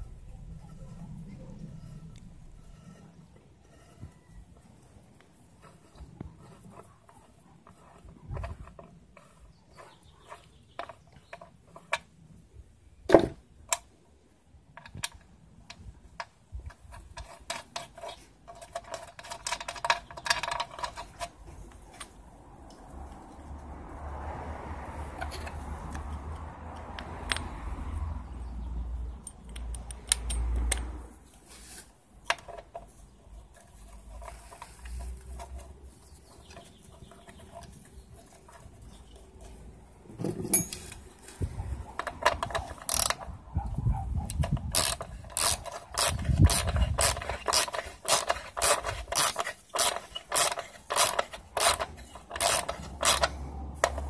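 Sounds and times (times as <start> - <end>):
low hum: 0.0 - 4.4
metal parts knocking: 16.7 - 21.3, 44.5 - 54.0
ratchet tool clicking: 42.0 - 43.3, 44.4 - 54.0.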